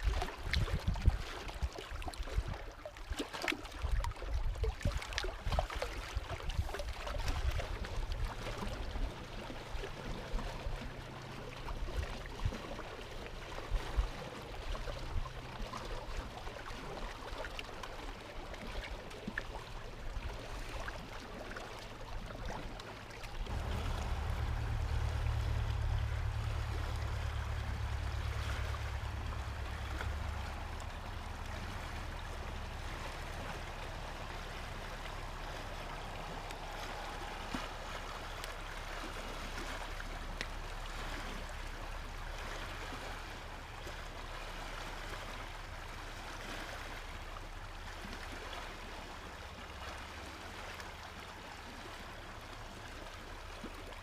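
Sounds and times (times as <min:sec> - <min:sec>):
steady water noise: 0:00.0 - 0:54.0
low rumble: 0:19.4 - 0:49.2.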